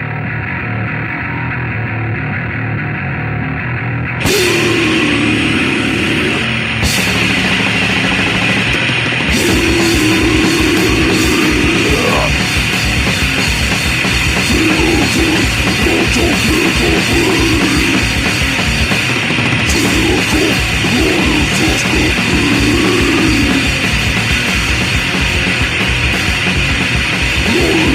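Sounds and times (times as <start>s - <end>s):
fast punk band playing: 0.0s - 27.9s.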